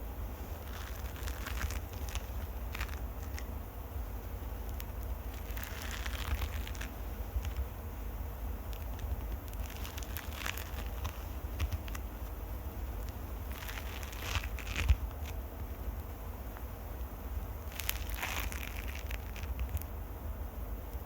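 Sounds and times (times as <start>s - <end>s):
handling rumble: 0.0s - 20.8s
scratching on microphone: 0.4s - 3.6s, 4.2s - 7.7s, 8.7s - 16.0s, 17.6s - 19.9s.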